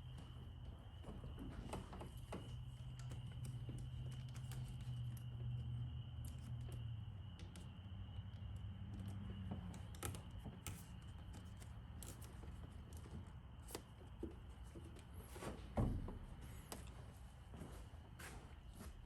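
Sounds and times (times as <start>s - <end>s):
hands clicking and rustling: 0.0s - 15.3s.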